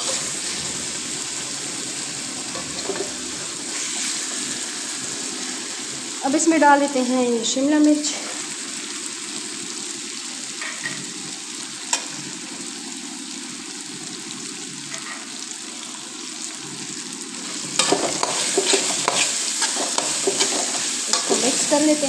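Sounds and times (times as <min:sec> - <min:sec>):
food sizzling in a pan: 0:00.0 - 0:22.0
metal spatula scraping pan: 0:17.5 - 0:22.0.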